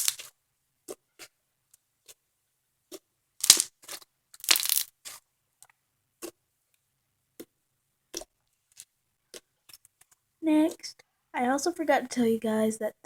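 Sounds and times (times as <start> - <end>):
slime squishing and crackling: 0.0 - 1.3, 2.9 - 5.2.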